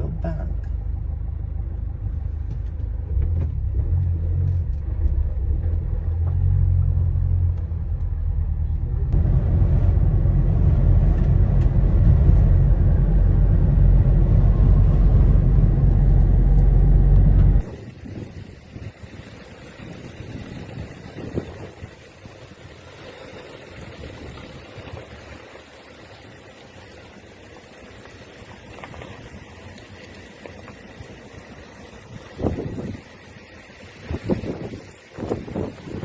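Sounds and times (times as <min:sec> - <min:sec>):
car engine rumble from inside: 0:00.0 - 0:36.0
road and wind noise: 0:00.0 - 0:36.0.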